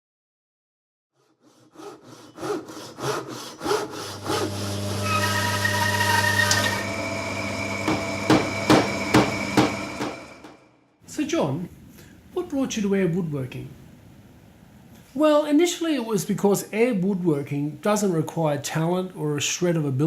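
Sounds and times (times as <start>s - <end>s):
handsaw cutting wood: 1.2s - 10.4s.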